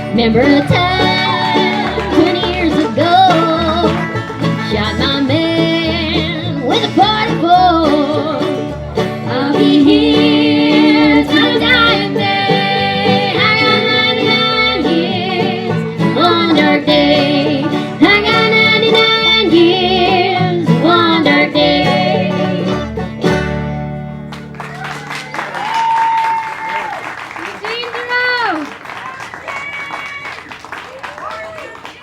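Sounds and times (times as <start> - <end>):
voices singing held notes: 0.0 - 23.0
banjo: 0.0 - 25.6
bluegrass band playing: 0.0 - 31.8.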